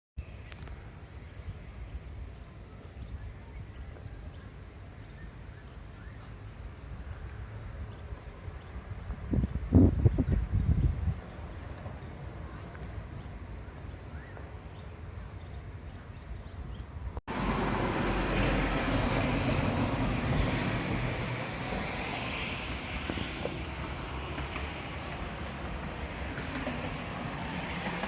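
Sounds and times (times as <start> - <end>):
strong wind on microphone: 8.8 - 11.6.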